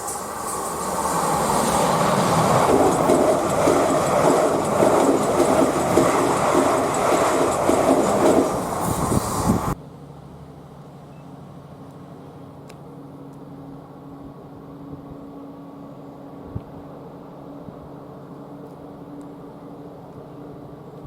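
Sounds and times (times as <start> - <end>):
train rail and wheel noise: 0.0 - 21.0.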